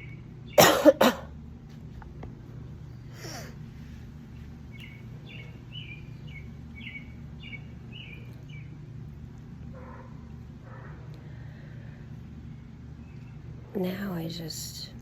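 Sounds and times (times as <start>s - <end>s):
bird chirping: 0.0s - 0.7s, 4.4s - 8.9s, 12.5s - 13.5s
low background rumble: 0.0s - 15.0s.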